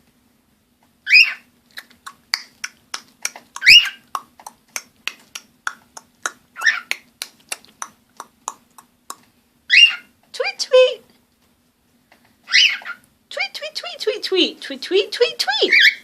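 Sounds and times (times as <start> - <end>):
cockatiel chirping: 1.1 - 1.5, 3.3 - 4.0, 6.6 - 6.9, 9.7 - 10.1, 12.5 - 13.0.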